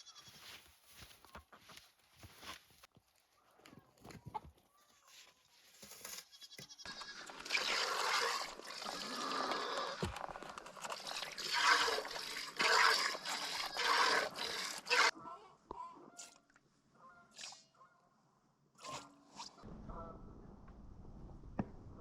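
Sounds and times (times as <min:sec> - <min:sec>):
goats bleating: 0:00.0 - 0:00.4, 0:06.3 - 0:15.1.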